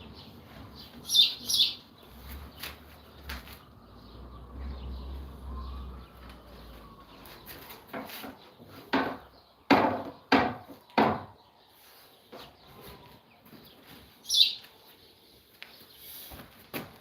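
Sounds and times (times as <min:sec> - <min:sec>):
knocks on wood: 0:07.9 - 0:11.4.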